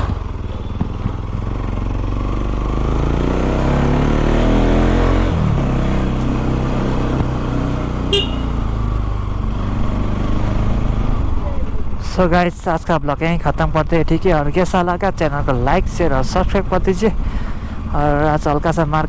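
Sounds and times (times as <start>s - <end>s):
motorcycle engine revving: 0.0s - 12.0s
short high-pitched beep: 8.2s - 8.6s.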